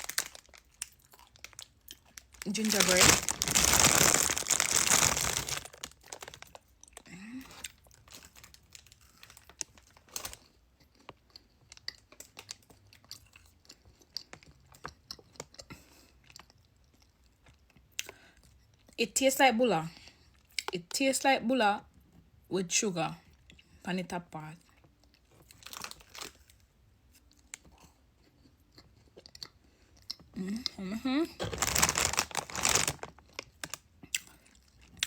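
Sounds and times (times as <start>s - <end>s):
plastic wrapper crinkling: 0.0s - 6.7s, 8.0s - 10.4s, 25.5s - 26.5s, 31.4s - 33.8s
crunching and chewing: 0.0s - 19.0s, 24.7s - 35.0s.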